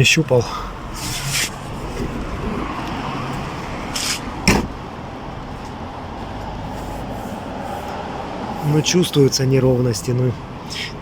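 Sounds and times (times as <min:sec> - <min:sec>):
low background rumble: 0:00.0 - 0:09.2
short scrape: 0:00.9 - 0:04.3
sharp knock: 0:04.5 - 0:04.7.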